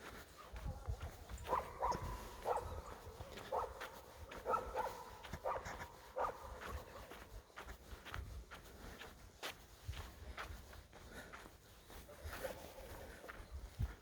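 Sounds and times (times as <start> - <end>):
dog barking: 0.4 - 7.3.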